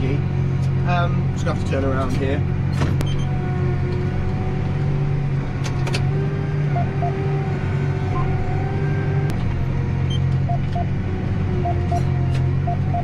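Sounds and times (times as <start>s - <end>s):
tractor diesel engine running: 0.0s - 13.0s
short electronic beeps: 10.1s - 10.9s, 11.6s - 12.1s, 12.7s - 13.0s.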